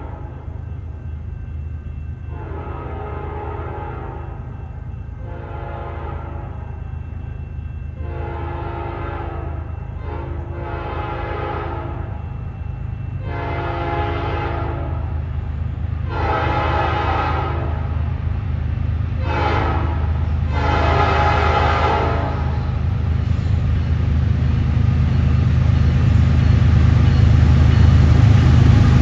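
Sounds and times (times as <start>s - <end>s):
diesel locomotive rumble: 0.0s - 29.0s
locomotive horn blasts: 2.3s - 4.4s, 5.2s - 6.6s, 8.0s - 12.2s, 13.2s - 15.0s, 16.0s - 18.0s, 19.2s - 22.8s.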